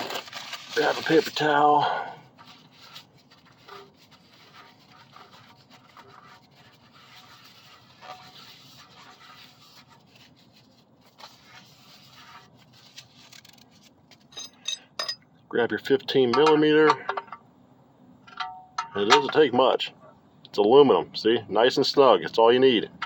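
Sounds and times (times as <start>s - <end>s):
scratching and rustling handling noise: 0.0s - 15.0s.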